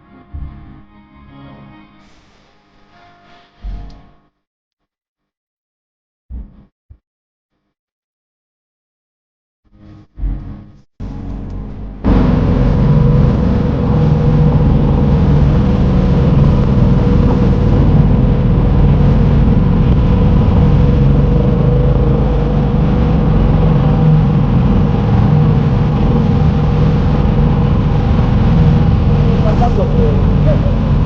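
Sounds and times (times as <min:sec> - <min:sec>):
boat engine droning: 0:11.1 - 0:31.0
steady whine: 0:11.1 - 0:31.0.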